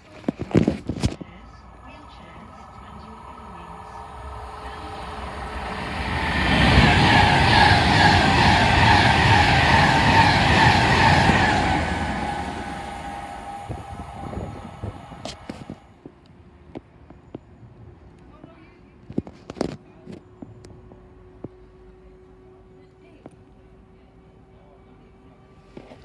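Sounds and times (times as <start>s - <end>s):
electric train passing at speed: 1.0s - 16.7s.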